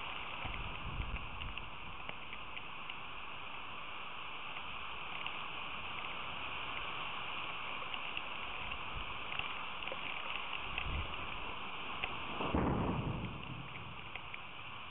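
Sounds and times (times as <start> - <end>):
rain falling: 0.0 - 14.9
low rumble: 12.0 - 14.9.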